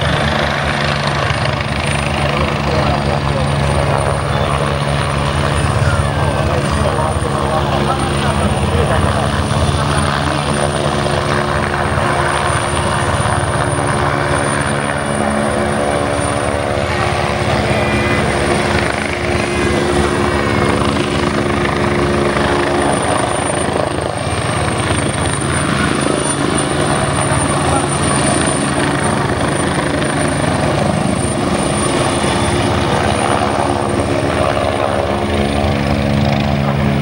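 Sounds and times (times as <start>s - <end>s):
helicopter hovering: 0.0s - 37.0s
thin high whine: 13.7s - 22.9s.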